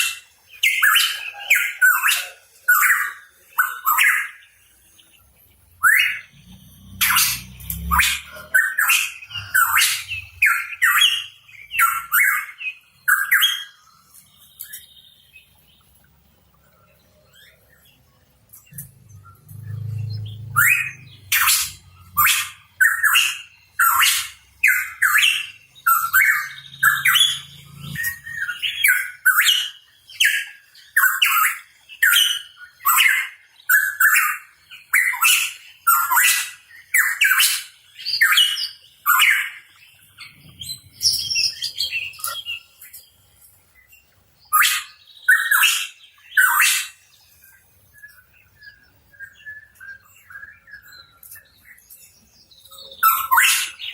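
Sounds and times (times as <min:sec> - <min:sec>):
bird chirping sharply: 0:05.8 - 0:15.9, 0:18.7 - 0:42.8.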